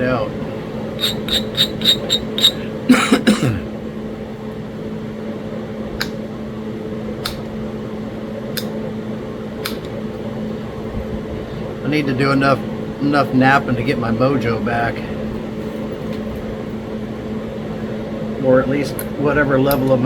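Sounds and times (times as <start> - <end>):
fan hum: 0.0 - 20.0
person coughing: 2.6 - 3.7.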